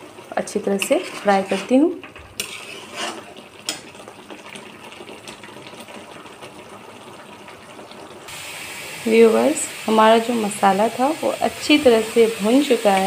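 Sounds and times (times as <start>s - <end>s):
paste sizzling in oil: 0.3s - 3.8s, 8.3s - 13.0s.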